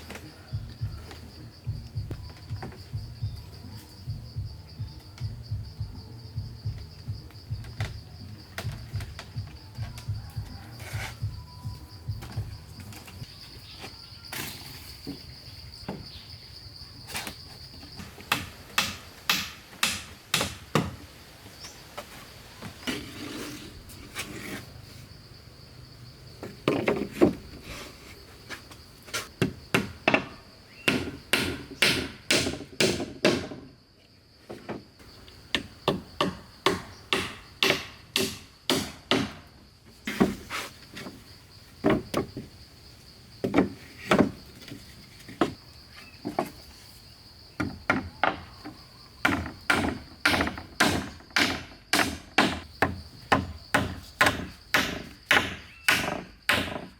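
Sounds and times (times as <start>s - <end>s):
high insect drone: 0.0s - 56.9s
hand tool striking wood: 18.1s - 21.0s, 29.2s - 33.6s, 35.5s - 39.4s, 49.2s - 56.9s.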